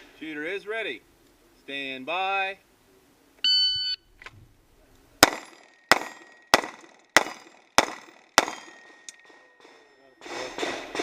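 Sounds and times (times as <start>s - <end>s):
pistol shots: 5.2s - 8.9s
ring of hit steel target: 8.4s - 9.2s.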